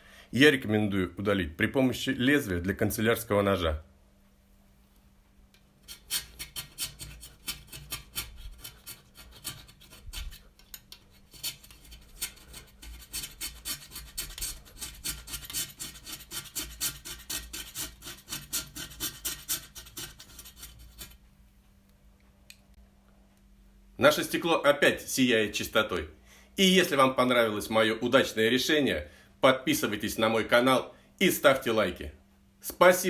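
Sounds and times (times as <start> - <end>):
knife blade scraping glass: 5.8 - 21.2.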